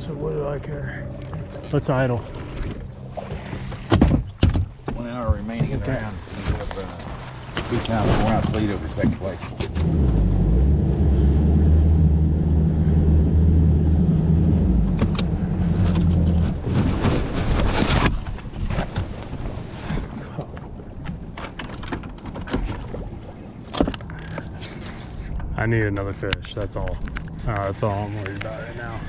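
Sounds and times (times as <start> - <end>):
outboard motor idling: 0.0 - 4.0, 8.9 - 16.7.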